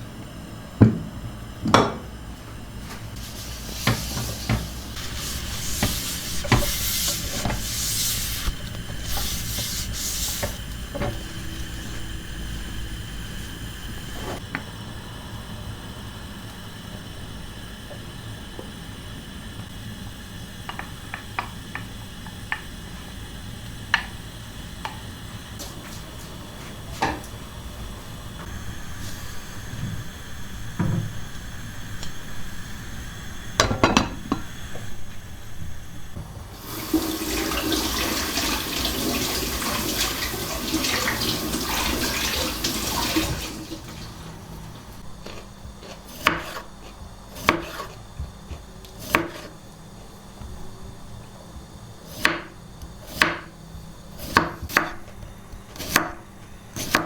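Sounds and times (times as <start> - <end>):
tap running into sink: 3.7 - 5.0, 5.6 - 7.7, 36.7 - 43.6.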